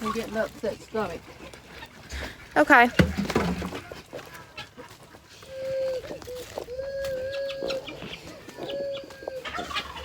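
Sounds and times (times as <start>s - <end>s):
chickens calling: 0.0s - 10.0s.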